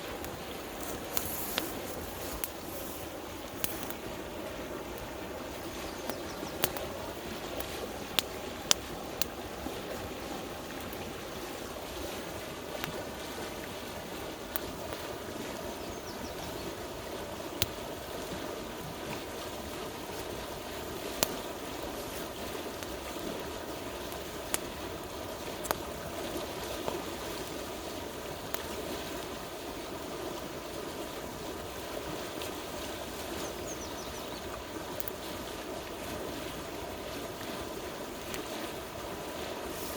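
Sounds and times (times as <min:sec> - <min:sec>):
campfire pops and crackles: 0:00.0 - 0:39.9
river water rushing: 0:00.0 - 0:39.9.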